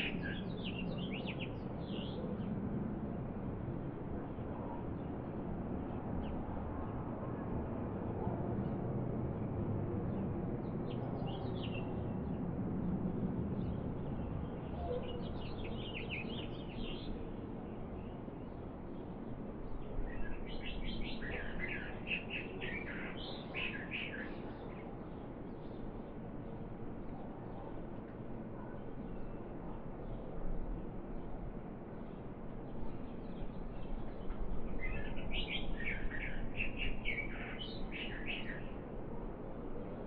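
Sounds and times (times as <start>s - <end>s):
small birds chirping: 32.1s - 38.8s.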